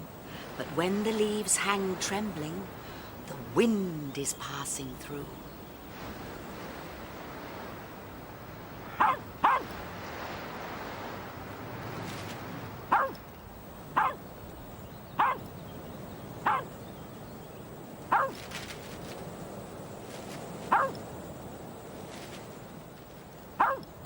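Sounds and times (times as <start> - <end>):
dog barking: 8.9 - 9.8, 12.9 - 13.2, 14.0 - 14.2, 15.2 - 15.5, 16.4 - 16.7, 18.1 - 18.4, 20.7 - 21.0, 23.6 - 23.9.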